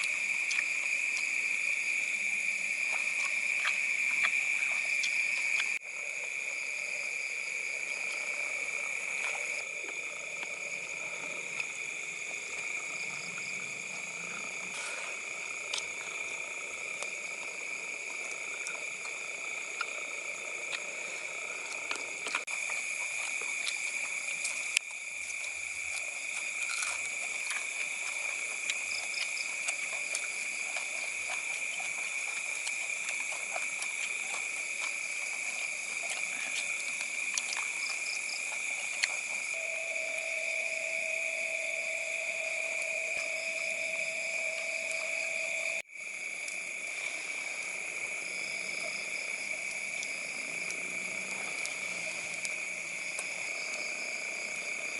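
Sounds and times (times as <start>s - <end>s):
high-pitched insect trill: 0.0s - 54.9s
lower insect call: 0.0s - 54.9s.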